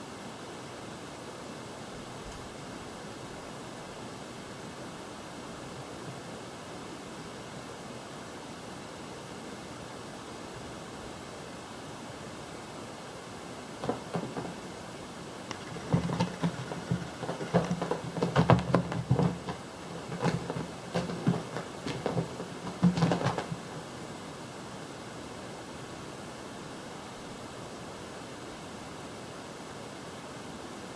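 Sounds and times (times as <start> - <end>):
steady hiss: 0.0 - 30.9
cat paws thumping on floor: 13.8 - 14.8, 15.5 - 23.9.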